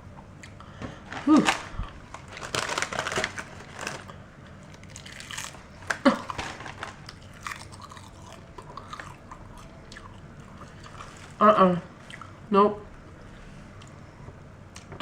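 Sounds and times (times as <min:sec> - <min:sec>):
crunchy chewing: 0:00.4 - 0:11.4.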